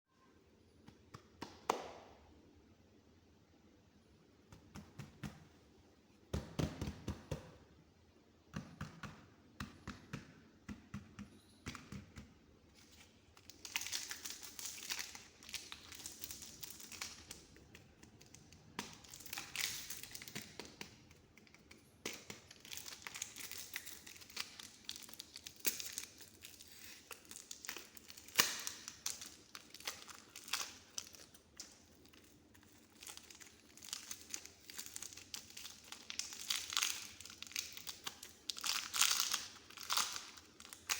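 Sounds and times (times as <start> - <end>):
clay patted and pressed: 0.7 - 2.4, 4.2 - 7.8, 8.4 - 40.9
clay squishing crinkly: 8.4 - 40.9.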